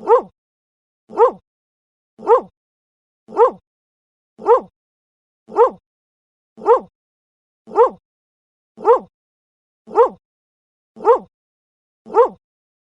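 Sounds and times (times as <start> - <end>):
dog barking: 0.0 - 0.3, 1.1 - 1.4, 2.2 - 2.5, 3.3 - 3.6, 4.4 - 4.7, 5.5 - 5.8, 6.6 - 6.9, 7.7 - 8.0, 8.8 - 9.1, 9.9 - 10.2, 11.0 - 11.3, 12.1 - 12.4.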